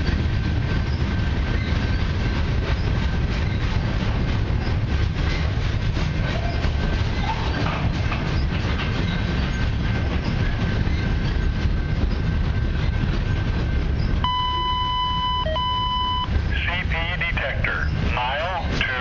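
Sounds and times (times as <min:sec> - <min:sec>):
wheels clacking over rail joints: 0:00.0 - 0:14.2
freight cars rolling on rails: 0:00.0 - 0:19.0
electronic beep tone: 0:14.2 - 0:16.3.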